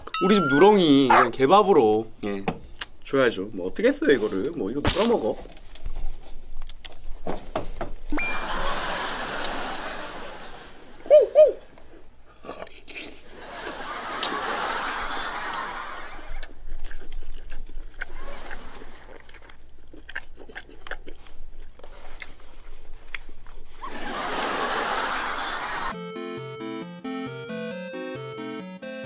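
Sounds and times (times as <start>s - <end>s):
wet chewing and lip-smacking: 16.2s - 23.8s
short music cue: 26.0s - 29.0s.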